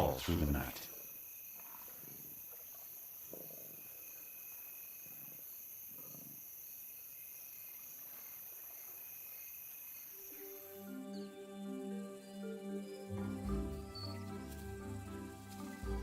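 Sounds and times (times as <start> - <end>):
crickets chirring: 0.0 - 16.0
lions growling: 5.0 - 6.6.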